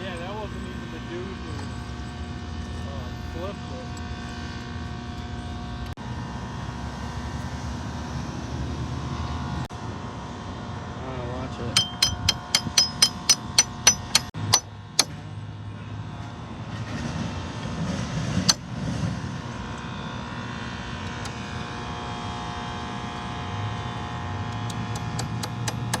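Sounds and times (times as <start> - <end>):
drill rig engine running: 0.0 - 6.0, 11.8 - 15.2, 24.5 - 26.0
metal knock: 11.8 - 15.2
sharp metallic clicks: 11.8 - 15.2, 24.6 - 26.0.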